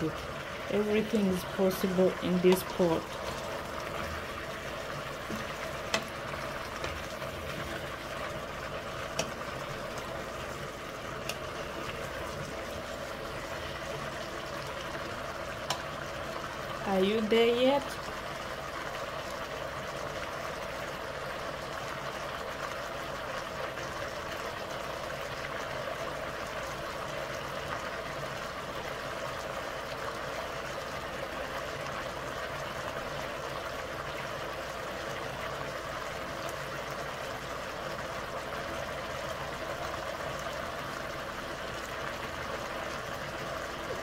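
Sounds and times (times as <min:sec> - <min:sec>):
vegetables sizzling in oil: 0:00.0 - 0:44.0.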